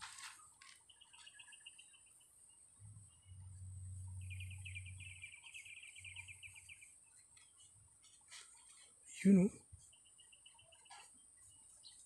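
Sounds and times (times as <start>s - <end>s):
faint bird chirps: 0.2s - 12.0s
bird trill: 0.4s - 7.7s, 9.8s - 12.0s
low hum: 2.4s - 7.4s.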